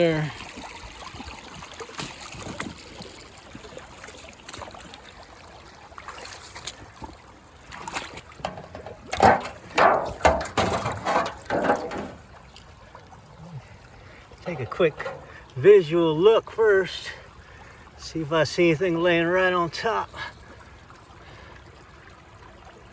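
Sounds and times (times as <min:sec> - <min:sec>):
creek trickling: 0:00.0 - 0:22.9
heavy footsteps on creek bed: 0:06.1 - 0:12.5, 0:14.4 - 0:15.9.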